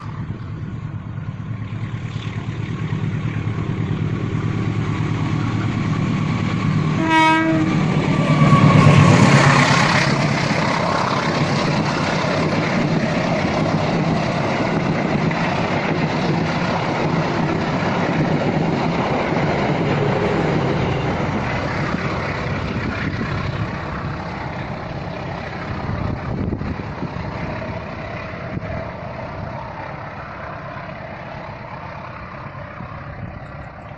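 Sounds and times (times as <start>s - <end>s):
train rumbling past: 0.0s - 33.9s
train horn blast: 6.9s - 9.2s.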